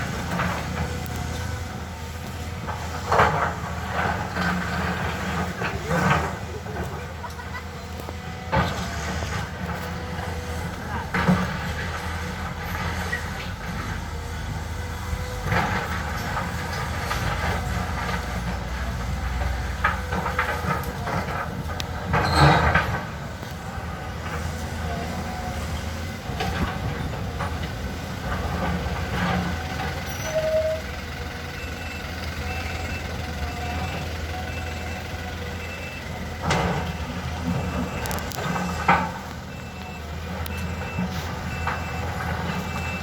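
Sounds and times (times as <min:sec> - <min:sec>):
diesel engine running: 0:00.0 - 0:43.0
machine squeaks: 0:22.2 - 0:22.9, 0:30.0 - 0:30.9.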